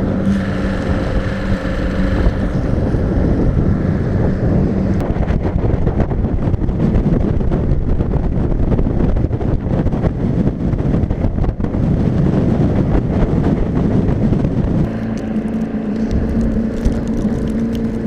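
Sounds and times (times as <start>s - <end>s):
low motor rumble: 0.0s - 18.0s
wind buffeting microphone: 0.0s - 18.0s.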